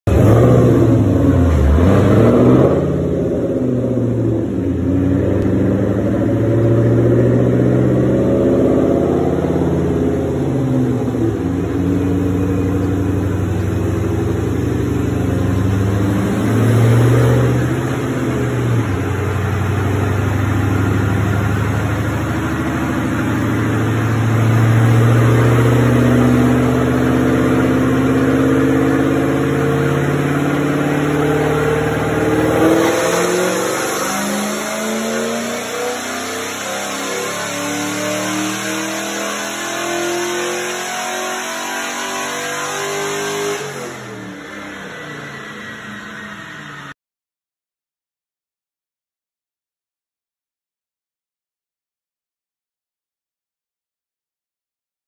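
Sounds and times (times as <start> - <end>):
supercharged engine revving: 0.1 - 47.0.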